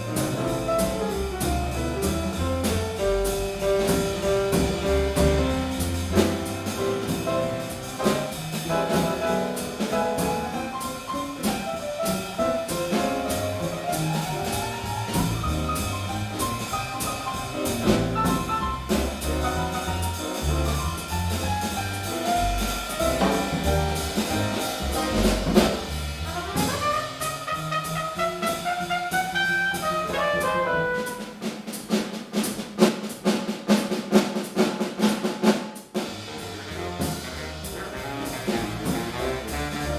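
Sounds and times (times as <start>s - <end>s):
walking double bass: 0.0s - 31.5s, 36.1s - 39.9s
drum kit with ride cymbal: 0.0s - 39.9s
piano: 0.0s - 39.9s
brass horn solo: 26.3s - 31.3s.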